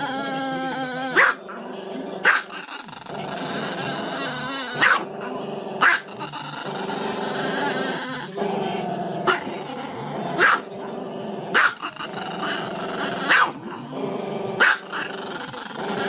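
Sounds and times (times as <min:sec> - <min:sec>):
dog yapping: 0:01.2 - 0:01.4, 0:04.8 - 0:05.1, 0:13.3 - 0:13.6, 0:14.6 - 0:14.8
dog howling and growling: 0:02.4 - 0:16.0.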